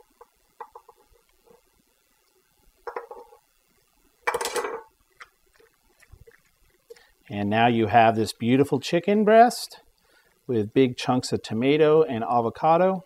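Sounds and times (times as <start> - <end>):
dishes and utensils clinking: 4.3 - 4.9.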